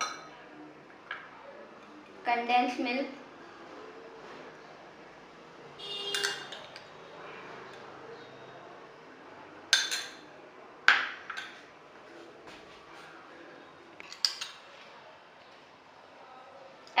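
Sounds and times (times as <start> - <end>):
spoon clinking against a mug: 6.1 - 6.9, 9.8 - 10.2.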